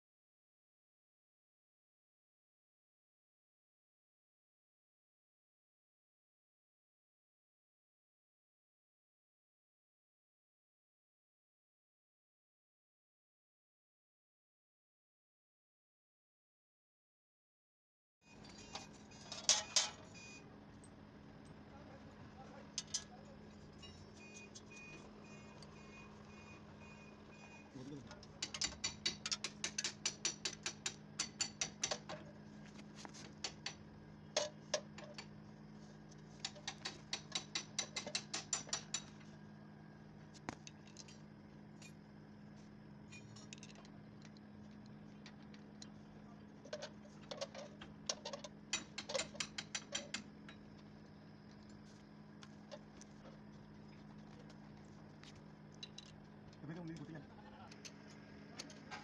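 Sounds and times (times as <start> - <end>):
steady low hum: 18.3 - 59.0.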